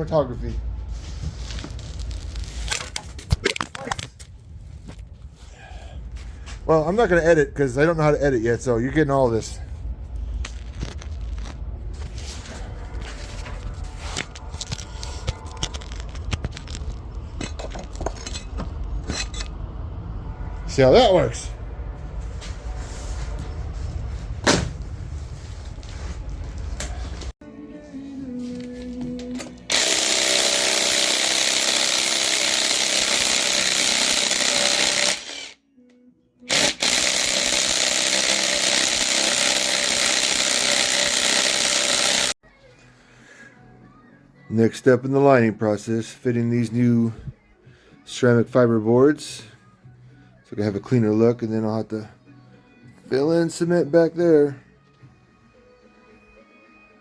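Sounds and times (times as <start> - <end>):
steady low rumble: 4.1 - 27.4
objects being handled: 10.4 - 19.5
power tool running: 29.4 - 35.6, 36.5 - 42.4.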